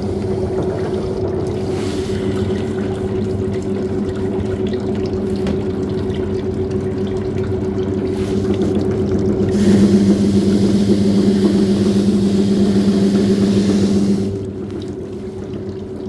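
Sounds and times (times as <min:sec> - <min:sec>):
water churning and splashing: 0:00.0 - 0:16.0
motor hum: 0:07.6 - 0:16.0.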